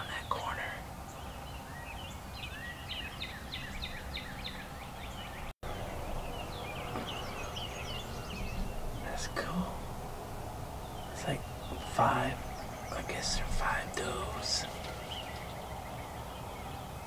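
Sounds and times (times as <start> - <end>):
bird whistling downward notes: 1.3 - 9.9
low outdoor rumble: 3.6 - 17.0.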